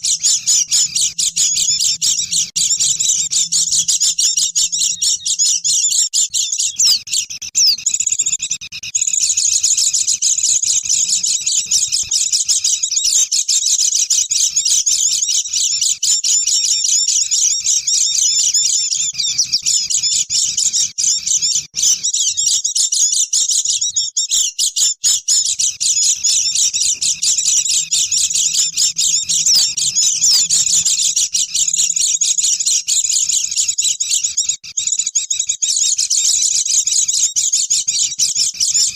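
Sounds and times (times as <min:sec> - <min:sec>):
flock of birds twittering: 0:00.0 - 0:38.9.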